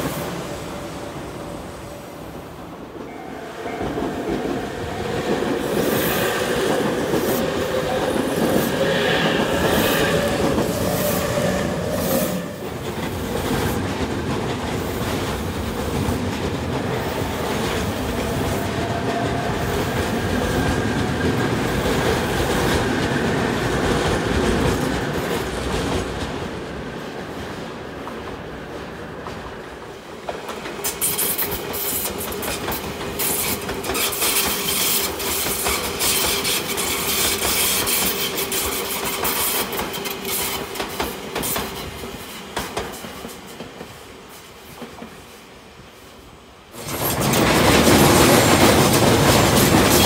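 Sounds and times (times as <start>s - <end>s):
train wheels clattering over rail joints: 46.8s - 50.0s.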